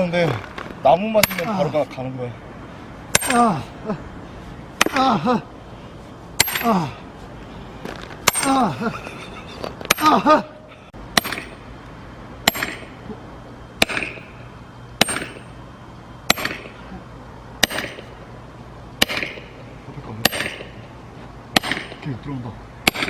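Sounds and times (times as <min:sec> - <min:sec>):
sledgehammer striking splitting wedge: 0:01.2 - 0:01.7, 0:03.1 - 0:03.7, 0:04.8 - 0:05.2, 0:06.4 - 0:06.8, 0:08.2 - 0:08.8, 0:11.2 - 0:11.6, 0:12.5 - 0:12.9, 0:13.8 - 0:14.3, 0:15.0 - 0:15.5, 0:16.3 - 0:16.8, 0:17.6 - 0:18.1, 0:19.0 - 0:19.5, 0:20.2 - 0:20.8, 0:21.5 - 0:22.1.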